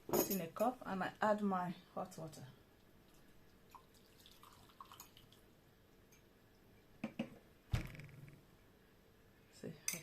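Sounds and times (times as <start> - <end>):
liquid trickling and dripping: 2.7 - 6.8
water pouring into cup: 3.1 - 5.4.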